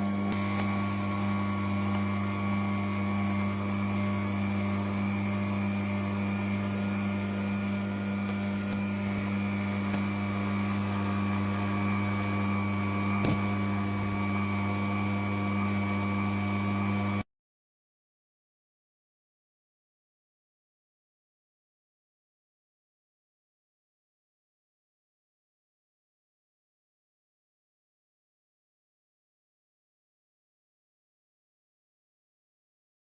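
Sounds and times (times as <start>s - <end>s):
juicer motor humming: 0.0s - 17.2s.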